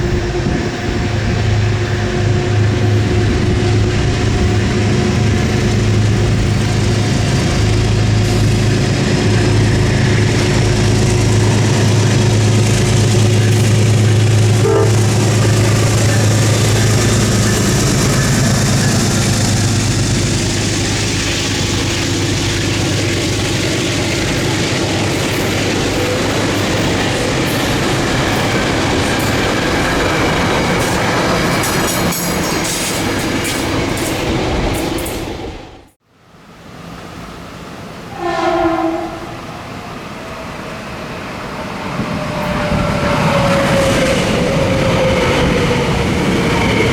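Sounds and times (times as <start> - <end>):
rail noise: 0.0 - 46.9
train passing: 0.0 - 46.9.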